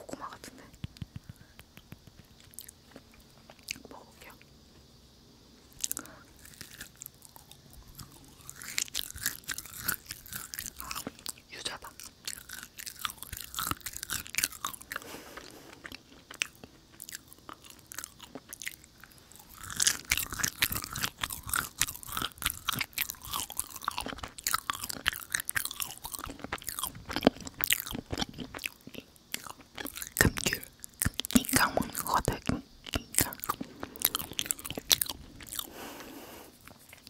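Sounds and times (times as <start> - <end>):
chewing wet mouth clicks: 0.7 - 4.5, 5.8 - 37.0.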